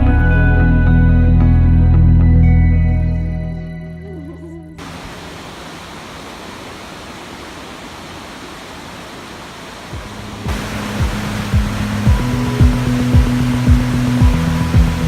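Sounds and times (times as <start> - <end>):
background music: 0.0 - 4.8, 10.0 - 15.0
waterfall rushing: 4.8 - 15.0.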